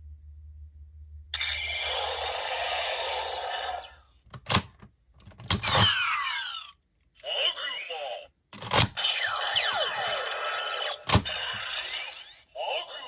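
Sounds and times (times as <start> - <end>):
toy belt buzzing effect: 8.8 - 13.0.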